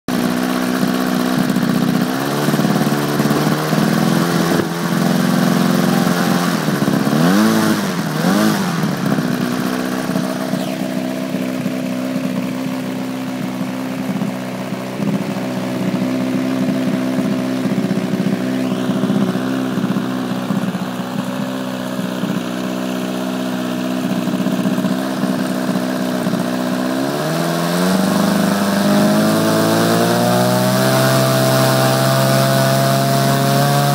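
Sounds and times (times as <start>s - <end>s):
model aircraft engine running: 0.1s - 33.9s.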